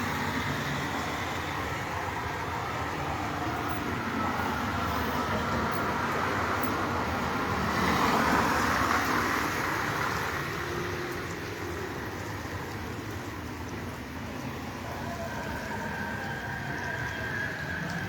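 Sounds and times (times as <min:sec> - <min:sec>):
vehicle passing: 0:00.0 - 0:10.8
road traffic noise: 0:00.0 - 0:18.0.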